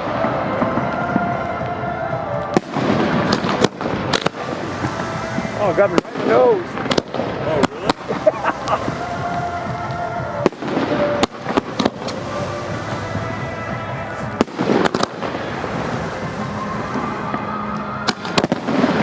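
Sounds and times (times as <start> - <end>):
fireworks crackle and rumble: 0.0 - 19.0
firework shells bursting: 2.5 - 19.0.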